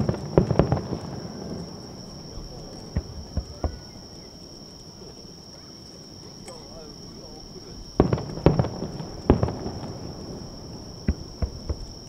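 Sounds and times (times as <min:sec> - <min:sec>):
distant firework booms: 0:00.0 - 0:04.4, 0:06.5 - 0:12.0
night insects trilling: 0:00.0 - 0:12.0.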